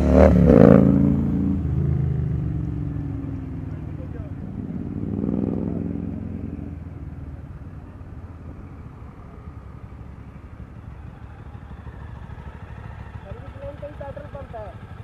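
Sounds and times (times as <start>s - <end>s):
motorcycle engines in traffic: 0.0s - 15.0s
road rumble: 0.0s - 15.0s.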